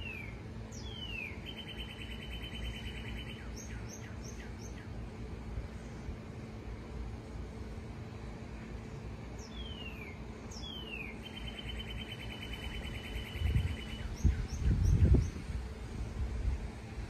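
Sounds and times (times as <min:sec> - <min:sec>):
bird whistles and trill: 0:00.0 - 0:04.9, 0:09.4 - 0:15.4.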